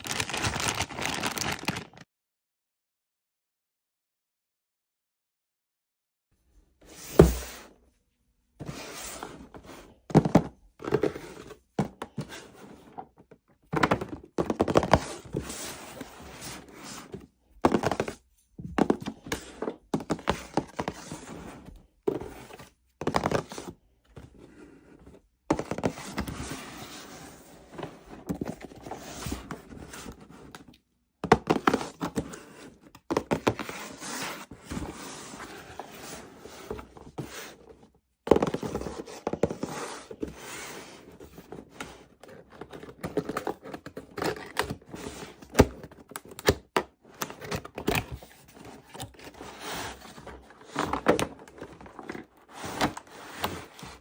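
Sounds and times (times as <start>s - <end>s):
packaging rustling: 0.0s - 2.0s.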